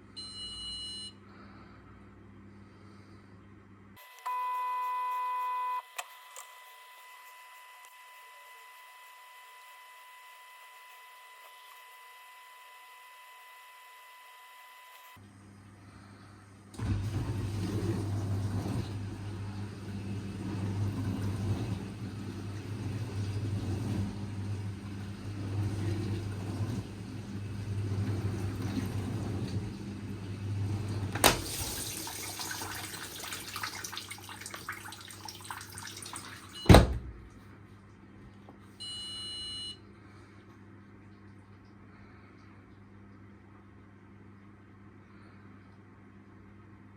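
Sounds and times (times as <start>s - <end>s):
short electronic beep: 4.0s - 5.9s, 38.8s - 39.8s
dishwasher pump motor hum: 16.5s - 37.4s
water churning: 16.8s - 36.6s.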